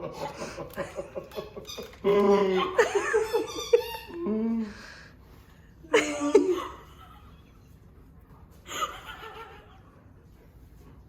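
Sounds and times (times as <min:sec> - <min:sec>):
people laughing: 0:00.0 - 0:04.2, 0:05.9 - 0:07.8.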